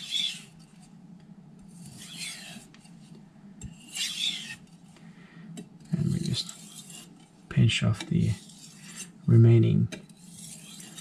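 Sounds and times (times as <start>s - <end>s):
knife scraping on whetstone: 0.0s - 0.9s, 1.6s - 3.1s, 3.7s - 4.8s, 5.9s - 7.3s, 8.2s - 9.2s, 10.0s - 11.0s.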